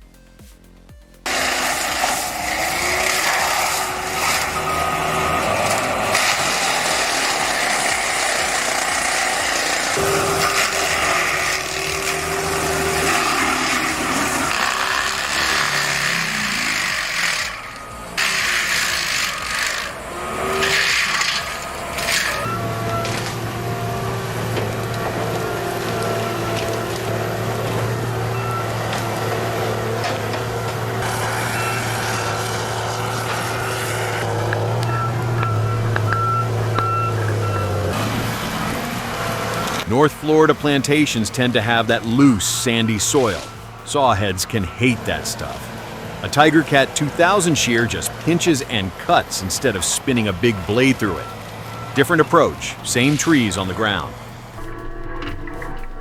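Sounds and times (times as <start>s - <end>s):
backup alarm beeping: 0.0s - 56.0s
diesel engine under load: 0.0s - 56.0s
wood grinding and cutting: 0.6s - 56.0s.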